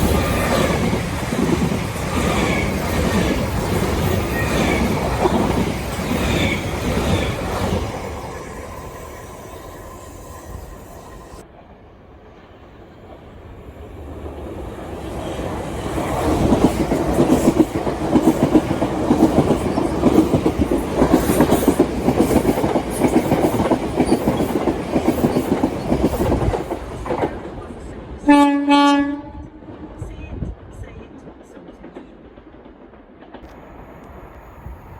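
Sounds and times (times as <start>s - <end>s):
train wheels clattering: 15.8s - 27.7s
train horn blast: 28.3s - 29.7s.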